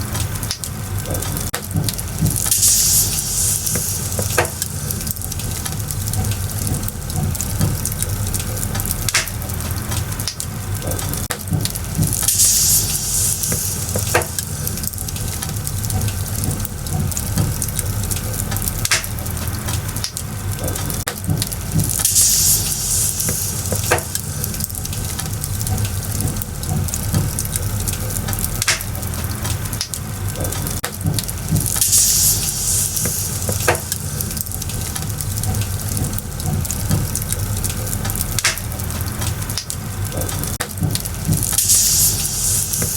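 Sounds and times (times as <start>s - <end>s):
fire crackling and popping: 0.0s - 42.9s
low fire rumble: 0.0s - 42.9s
fire hissing surge: 2.1s - 10.2s, 11.8s - 20.8s, 21.6s - 28.9s, 31.3s - 38.8s, 41.2s - 42.9s.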